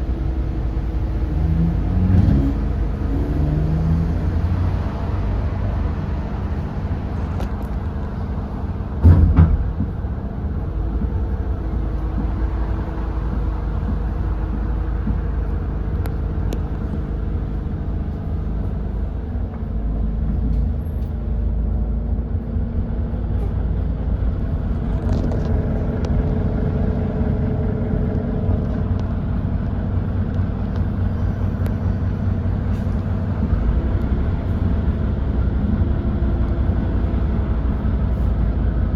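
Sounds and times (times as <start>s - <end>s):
bus engine running: 0.0s - 38.9s
loud thud: 9.0s - 10.0s.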